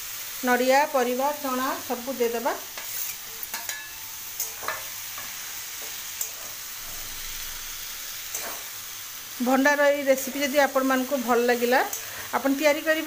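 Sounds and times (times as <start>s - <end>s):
vegetables sizzling in a wok: 0.0s - 13.0s
spatula scraping pan: 2.6s - 7.6s, 8.2s - 8.8s.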